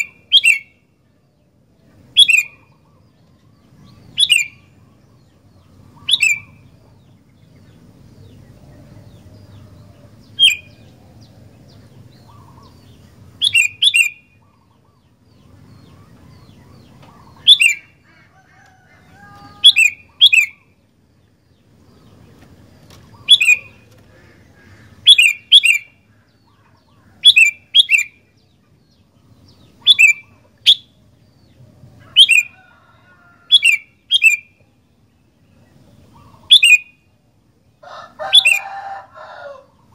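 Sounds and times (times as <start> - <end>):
bird calling: 2.1 - 7.1, 9.5 - 11.2, 12.1 - 20.8, 21.9 - 31.0, 32.0 - 34.8, 35.6 - 37.1, 37.8 - 39.9.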